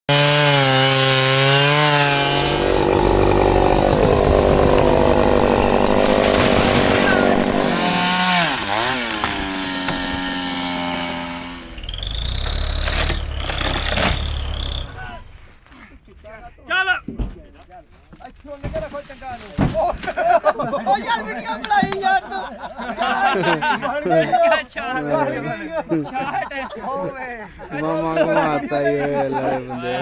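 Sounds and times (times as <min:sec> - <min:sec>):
chainsaw running at high revs: 0:00.1 - 0:15.0.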